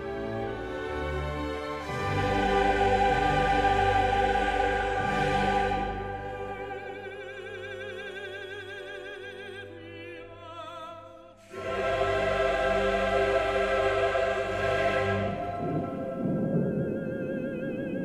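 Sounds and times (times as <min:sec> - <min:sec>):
orchestra playing: 0:00.0 - 0:07.6, 0:11.5 - 0:16.6
choir singing: 0:00.0 - 0:08.7, 0:10.6 - 0:16.8.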